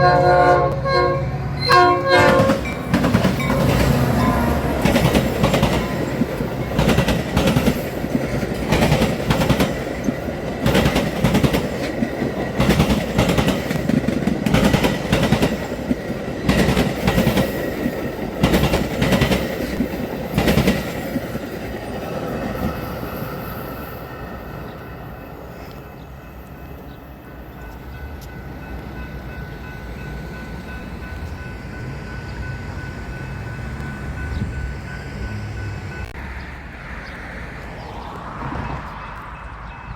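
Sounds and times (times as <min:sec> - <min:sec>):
train rumbling: 0:00.0 - 0:39.9
train wheels clattering: 0:02.2 - 0:23.6.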